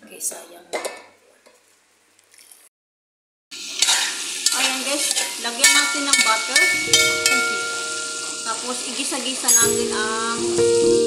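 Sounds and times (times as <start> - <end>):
food sizzling in a pan: 3.5 - 11.0.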